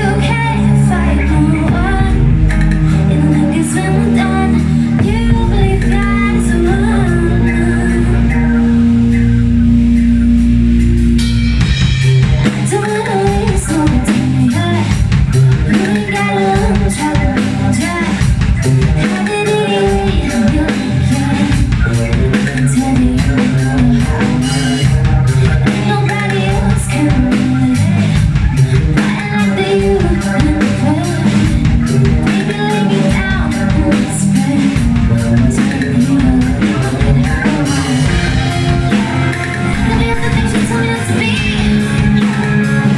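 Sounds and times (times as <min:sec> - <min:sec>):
drums: 0:00.0 - 0:42.9
rock band playing: 0:00.0 - 0:42.9
person singing: 0:12.4 - 0:18.3, 0:19.0 - 0:38.3, 0:39.5 - 0:42.3.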